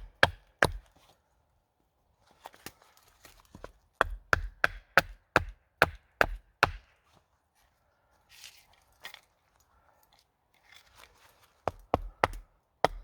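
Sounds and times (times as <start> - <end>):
wood being chopped: 0.0 - 0.9, 4.0 - 6.9, 11.7 - 13.0.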